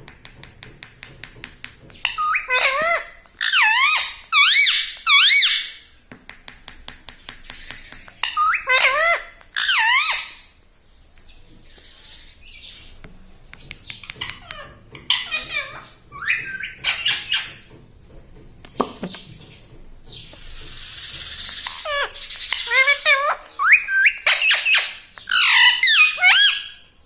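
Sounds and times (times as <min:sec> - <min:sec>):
parakeet squawking: 0:08.2 - 0:10.4, 0:21.5 - 0:26.8.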